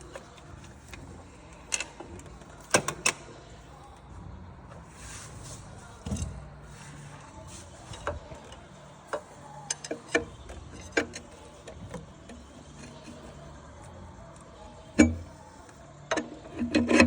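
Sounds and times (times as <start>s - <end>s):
hand tools clicking and tapping: 8.0s - 13.2s.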